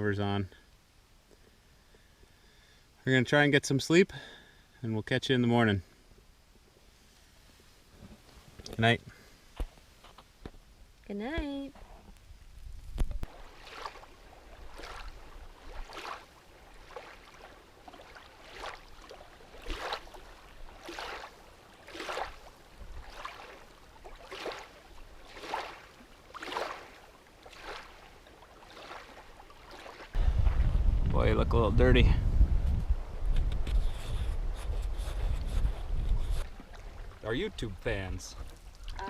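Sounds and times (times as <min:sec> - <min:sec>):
canoe paddle strokes in water: 0:12.6 - 0:30.9, 0:33.2 - 0:39.0.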